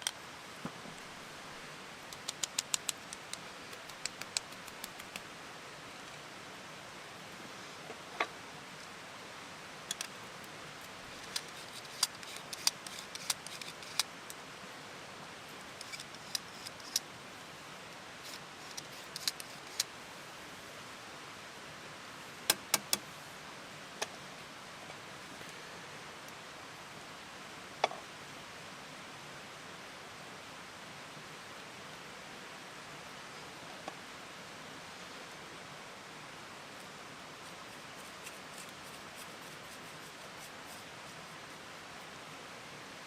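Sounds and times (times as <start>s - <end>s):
steady low hiss: 0.0s - 43.0s
sharp clicks and ticks: 2.1s - 5.3s, 11.2s - 14.4s.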